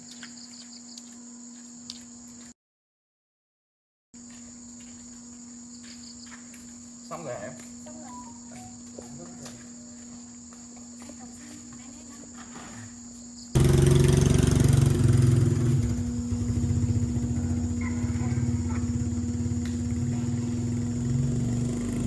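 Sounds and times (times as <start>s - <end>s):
crickets chirring: 0.0s - 2.5s, 4.2s - 22.0s
engine running with rhythmic pulse: 13.6s - 22.0s.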